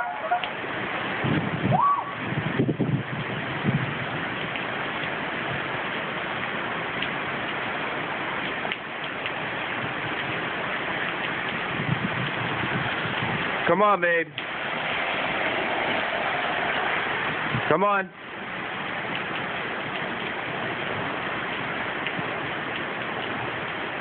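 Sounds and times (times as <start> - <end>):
heavy rain: 0.0 - 24.0
wind: 0.0 - 24.0.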